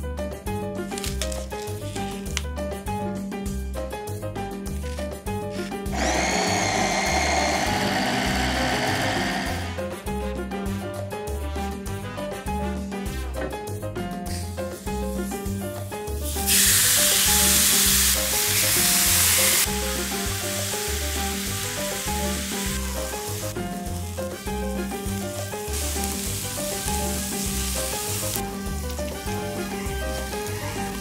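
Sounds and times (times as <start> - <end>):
latin-style music with bass beat: 0.0 - 31.0
peppers and onions sizzling: 0.9 - 2.4, 4.7 - 9.9, 14.2 - 31.0
steak sizzling in a hot pan: 5.5 - 9.8, 14.5 - 31.0.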